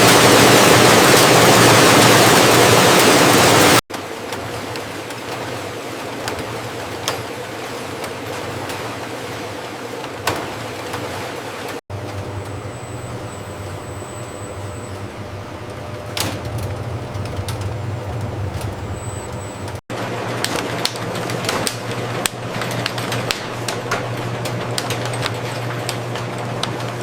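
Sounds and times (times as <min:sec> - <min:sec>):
factory machinery hum: 0:00.0 - 0:27.0
irregular clicking and clatter: 0:03.0 - 0:19.8.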